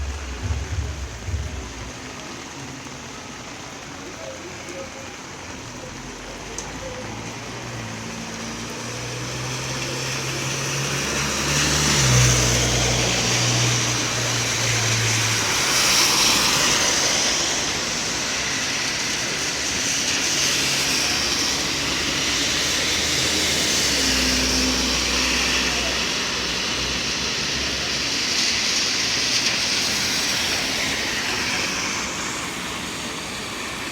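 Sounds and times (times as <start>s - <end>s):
vehicle engine humming: 0.0s - 2.5s
street and rain noise: 0.0s - 33.9s.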